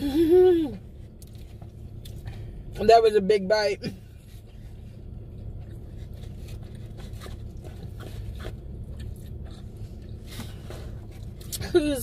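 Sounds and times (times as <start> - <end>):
car cabin hum: 0.0 - 12.0
person chewing: 4.4 - 11.6.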